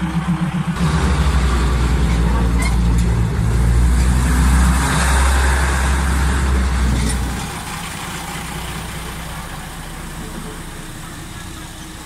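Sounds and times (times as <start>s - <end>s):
diesel railcar engine rumble: 0.0s - 12.0s
wheels clattering on rail: 0.0s - 12.0s.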